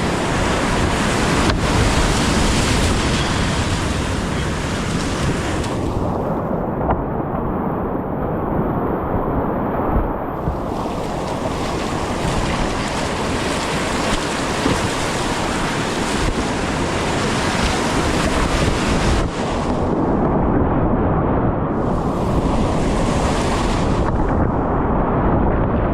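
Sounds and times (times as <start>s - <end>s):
whitewater rapids rushing: 0.0s - 6.1s, 10.4s - 19.8s
wind buffeting microphone: 0.0s - 25.9s.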